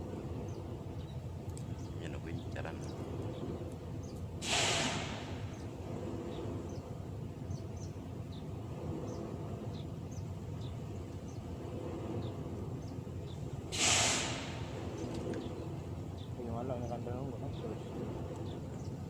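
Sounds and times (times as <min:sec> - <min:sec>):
low rumble: 0:00.0 - 0:19.0
sharp breath hiss: 0:04.4 - 0:05.6, 0:13.7 - 0:14.8.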